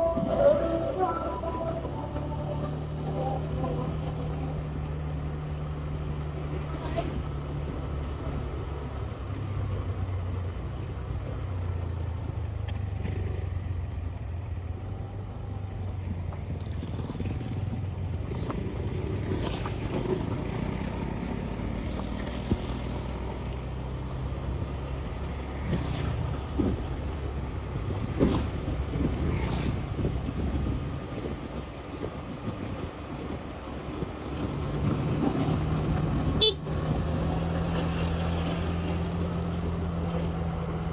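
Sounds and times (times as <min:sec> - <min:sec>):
motorbike engine running: 0:12.9 - 0:32.8, 0:33.8 - 0:40.9
wind on microphone: 0:27.8 - 0:37.2.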